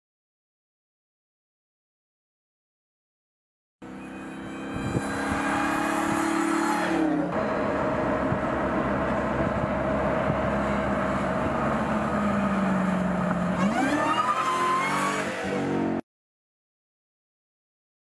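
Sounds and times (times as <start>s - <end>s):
car engine revving: 3.8s - 16.0s
high supercharger whine: 3.8s - 16.0s.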